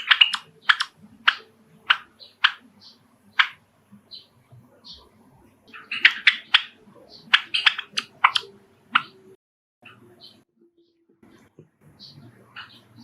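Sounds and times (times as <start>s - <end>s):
sparrow chirping: 0.0s - 5.1s, 5.7s - 11.0s, 11.9s - 13.0s.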